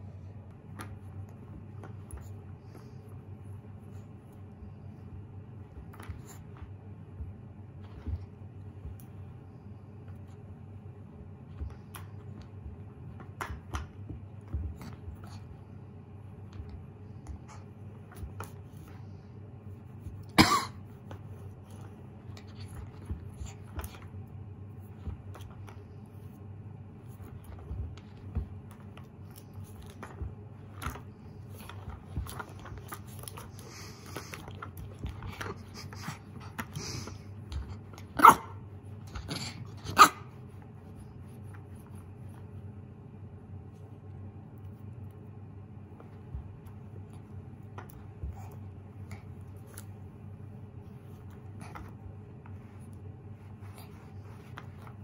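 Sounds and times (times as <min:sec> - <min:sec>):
paws and roller scuffing on rug: 0:00.0 - 0:42.9, 0:45.8 - 0:55.0
puppy barking: 0:38.1 - 0:38.6, 0:39.7 - 0:40.4.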